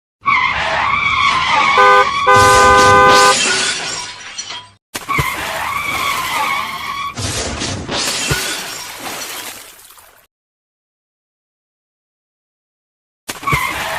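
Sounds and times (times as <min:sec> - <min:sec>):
screeching tyre skid: 0:00.2 - 0:03.4
multi-tone horn blasts: 0:01.7 - 0:03.4.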